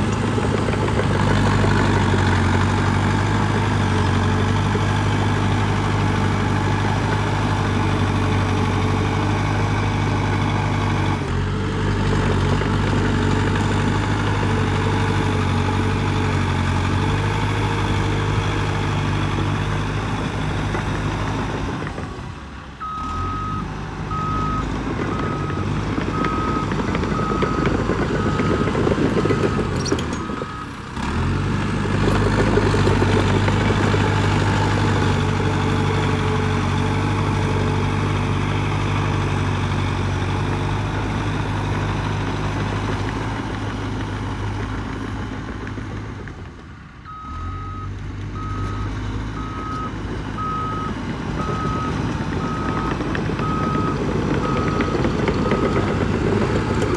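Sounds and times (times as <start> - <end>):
bulldozer diesel engine running: 0.0 - 56.9
reversing alarm beeping: 22.8 - 30.7, 47.1 - 56.9.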